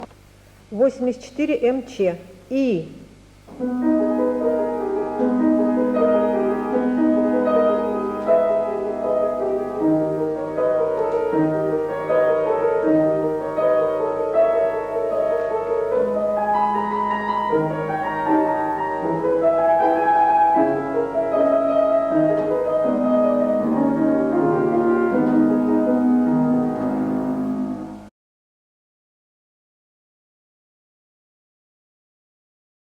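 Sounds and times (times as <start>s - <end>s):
piano piece: 3.5s - 28.1s.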